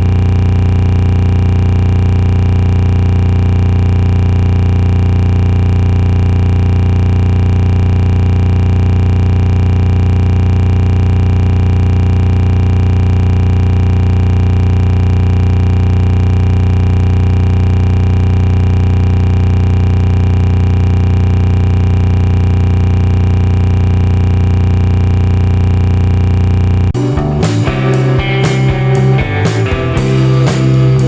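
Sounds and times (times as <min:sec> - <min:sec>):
loud steady humming drone: 0:00.0 - 0:31.0.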